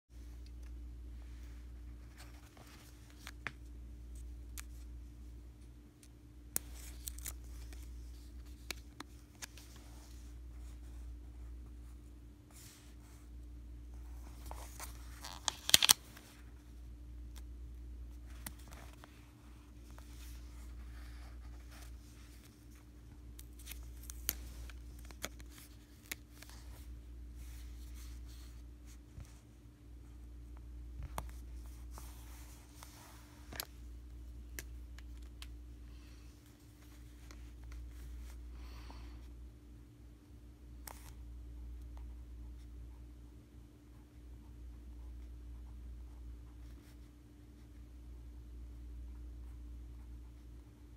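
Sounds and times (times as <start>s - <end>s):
steady low hum: 0.1s - 50.9s
stickers peeling and rustling: 6.6s - 10.2s, 14.4s - 16.4s, 19.8s - 28.6s
stickers crackling and ticking: 14.8s - 16.0s.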